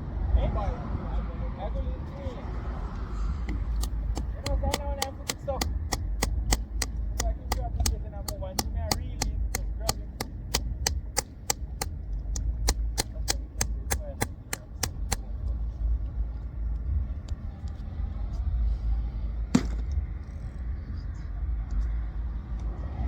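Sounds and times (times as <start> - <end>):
steady low rumble: 0.0 - 23.0
sharp clicks or taps: 3.5 - 15.3
sharp knock: 19.6 - 19.9.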